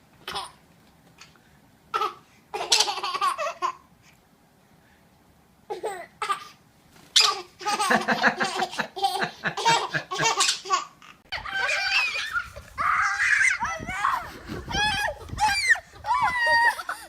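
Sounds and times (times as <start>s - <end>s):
baby laughing: 1.9s - 3.8s, 7.2s - 17.0s.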